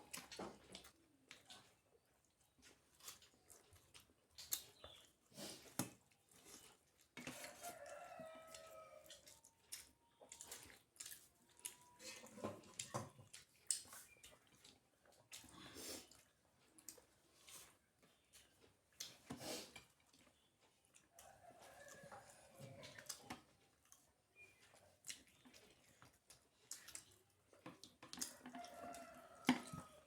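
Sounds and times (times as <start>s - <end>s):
person chewing: 0.0s - 29.8s
rooster crowing: 7.4s - 9.1s, 28.4s - 30.0s.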